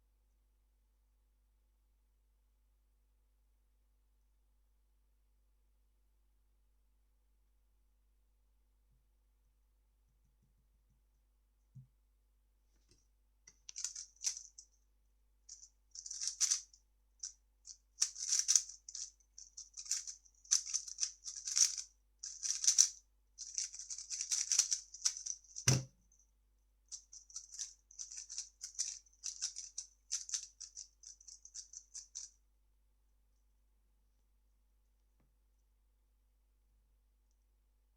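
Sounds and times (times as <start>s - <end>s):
cube set down thud: 25.7s - 25.9s.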